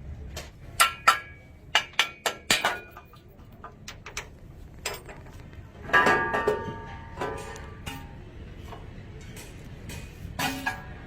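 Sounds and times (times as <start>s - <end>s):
hammer striking metal: 0.8s - 3.1s.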